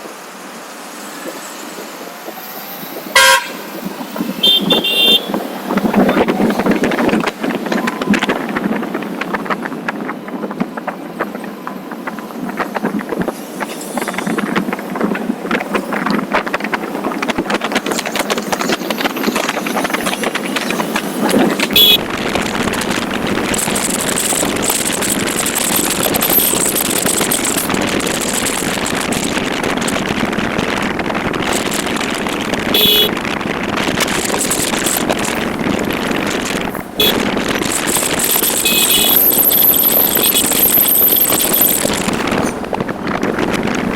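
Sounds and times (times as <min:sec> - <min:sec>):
wind and road noise: 0:00.0 - 0:43.9
motorcycle engine running: 0:21.7 - 0:43.0.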